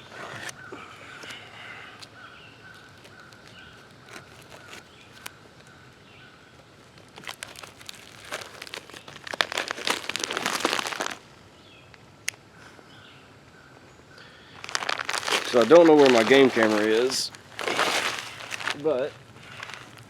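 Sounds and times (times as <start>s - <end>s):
dense crinkling and rustling: 2.7s - 5.6s, 6.7s - 11.2s, 14.4s - 20.0s.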